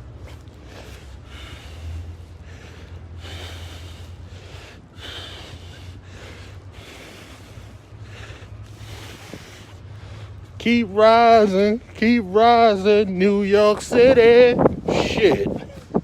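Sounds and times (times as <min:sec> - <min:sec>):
man breathing hard: 0:00.0 - 0:11.6
steady low rumble: 0:00.0 - 0:16.0.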